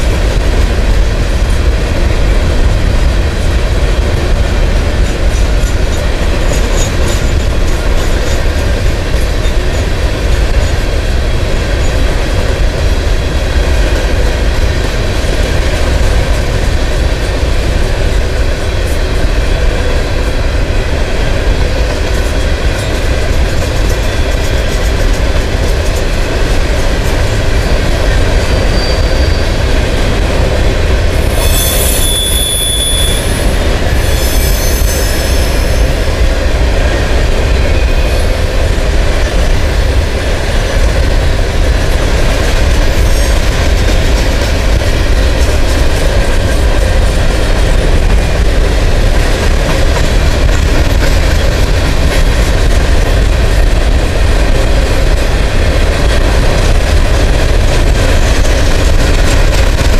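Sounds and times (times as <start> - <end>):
train wheels rumbling on rails: 0.0 - 59.9
high-pitched wheel squeal: 28.5 - 29.6, 31.2 - 36.0.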